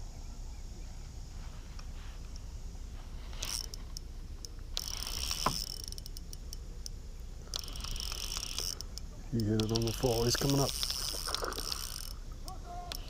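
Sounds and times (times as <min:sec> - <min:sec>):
fishing reel cranking: 0:03.4 - 0:13.0.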